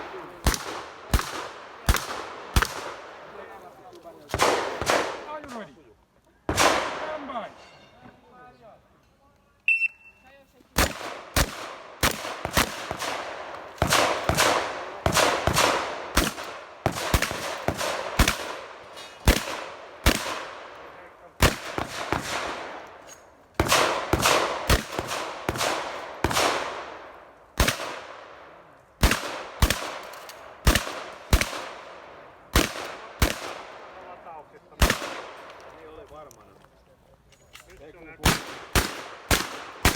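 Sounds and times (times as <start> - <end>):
shotgun shots: 0.0 - 3.3, 4.3 - 5.6, 6.5 - 7.4, 10.8 - 23.0, 23.6 - 28.4, 29.0 - 34.0, 34.8 - 35.6, 38.2 - 39.9.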